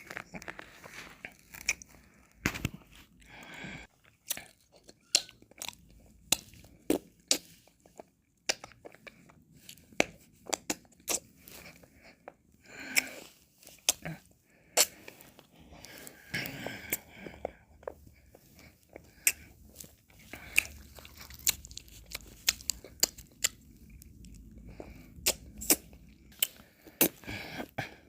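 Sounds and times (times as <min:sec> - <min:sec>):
mouth eating ice cream: 0:04.0 - 0:28.0.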